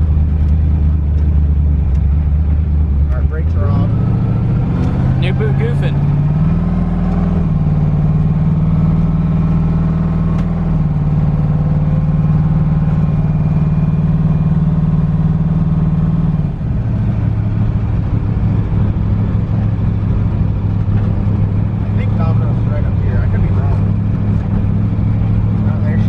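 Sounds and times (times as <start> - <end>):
unmuffled car engine droning: 0.0 - 26.0.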